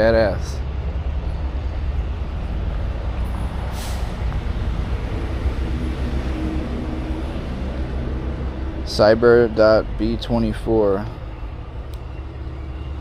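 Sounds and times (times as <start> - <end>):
vehicle engine idling: 0.0 - 13.0
short hiss: 3.7 - 4.2.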